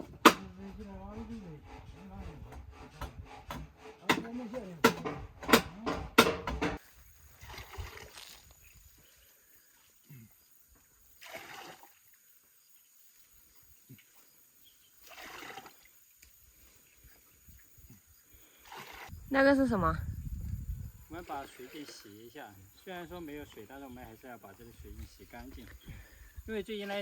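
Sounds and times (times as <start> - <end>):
hammer knocking on timber: 2.4 - 6.8
voices: 19.3 - 20.1.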